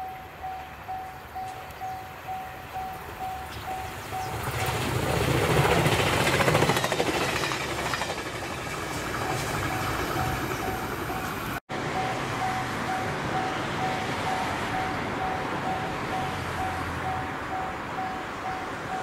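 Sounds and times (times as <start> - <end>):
level crossing warning bell: 0.0 - 4.6, 9.3 - 19.0
wheels clicking over rail joints: 0.0 - 11.6
electric train passing: 0.0 - 19.0.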